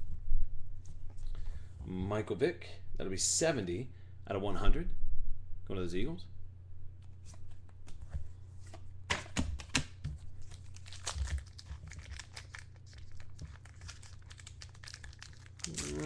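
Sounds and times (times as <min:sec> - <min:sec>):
steady low hum: 0:00.0 - 0:09.3
card pack wrappers crinkling: 0:10.4 - 0:16.0.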